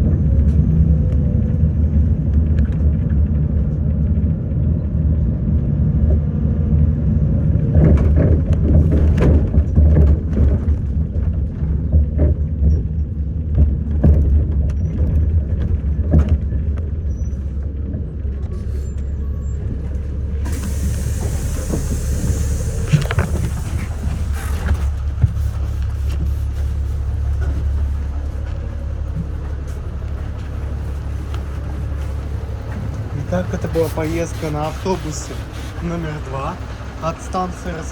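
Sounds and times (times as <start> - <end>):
bus body knocks and rattles: 0.0 - 37.9
bus diesel engine rumble: 0.0 - 37.9
compressed air hiss: 20.5 - 24.7.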